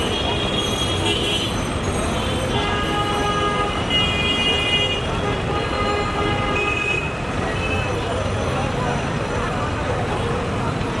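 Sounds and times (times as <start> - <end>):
road traffic: 0.0 - 11.0
vehicle horns honking: 2.2 - 7.8.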